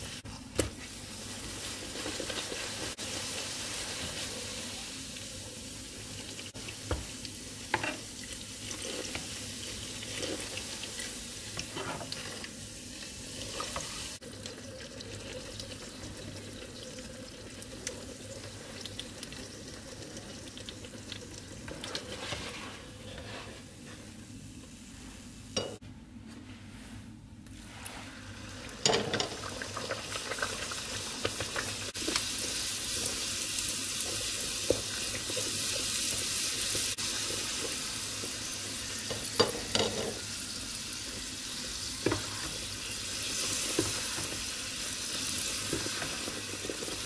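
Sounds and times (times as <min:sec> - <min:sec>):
dough deep-frying in oil: 0:00.0 - 0:24.0, 0:27.5 - 0:47.0.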